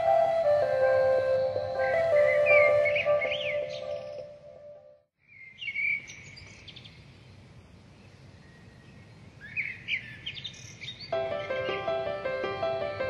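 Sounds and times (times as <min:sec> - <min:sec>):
music: 0:00.0 - 0:05.0, 0:11.2 - 0:13.0
low background noise: 0:00.0 - 0:13.0
small birds chirping: 0:01.3 - 0:04.4, 0:05.2 - 0:13.0.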